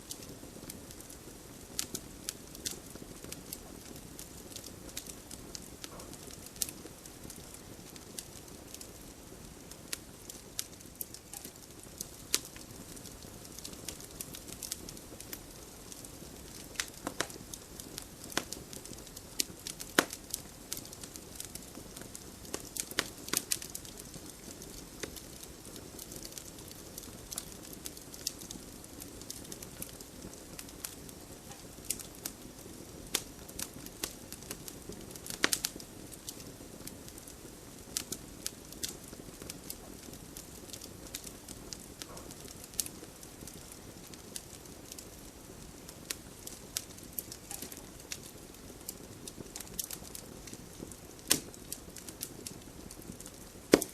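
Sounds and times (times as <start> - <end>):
fireplace fire crackling: 0.0 - 53.9
low hiss of fire: 0.0 - 53.9.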